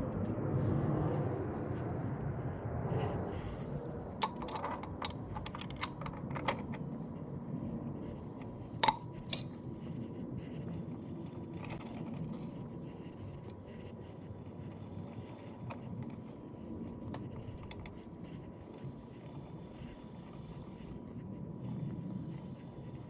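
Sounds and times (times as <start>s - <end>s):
metal parts clinking and scraping: 4.2s - 7.0s.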